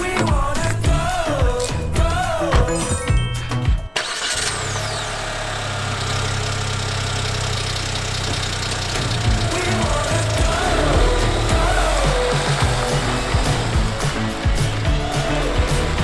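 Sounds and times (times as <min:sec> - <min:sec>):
background music: 0:00.0 - 0:04.4, 0:09.1 - 0:16.0
vehicle engine idling: 0:04.0 - 0:16.0.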